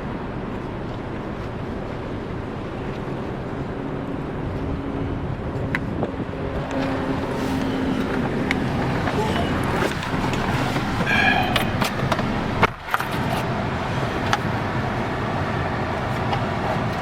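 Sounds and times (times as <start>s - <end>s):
car road and engine rumble: 0.0s - 17.0s
short high tone: 11.0s - 11.9s.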